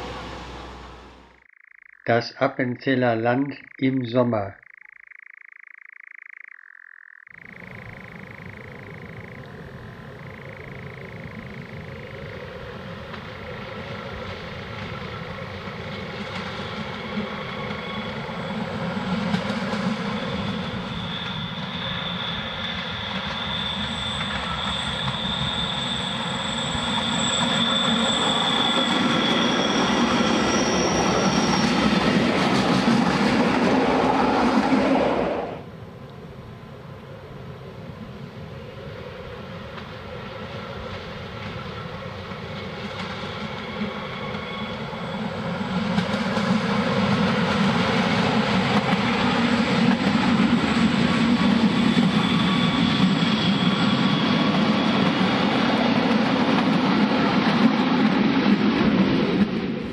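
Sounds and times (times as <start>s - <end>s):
electric train passing: 0.0s - 1.9s, 6.6s - 59.9s
wheels squealing: 19.8s - 33.6s, 48.9s - 55.5s.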